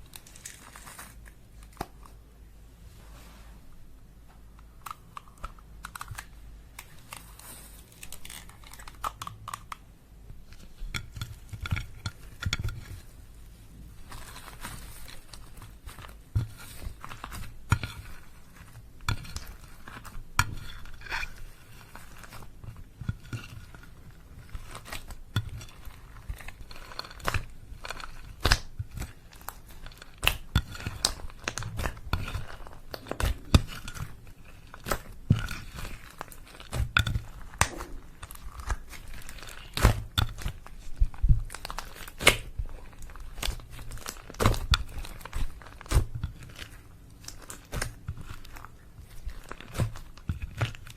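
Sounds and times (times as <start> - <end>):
slime squishing: 10.4 - 50.9.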